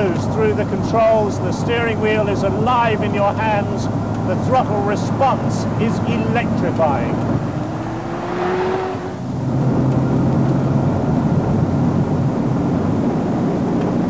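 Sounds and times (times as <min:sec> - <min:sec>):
car engine revving hard: 0:04.4 - 0:11.0.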